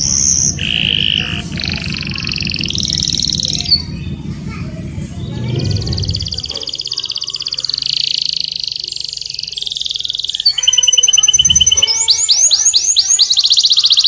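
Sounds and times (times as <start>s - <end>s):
canary singing trills: 0.0s - 14.0s.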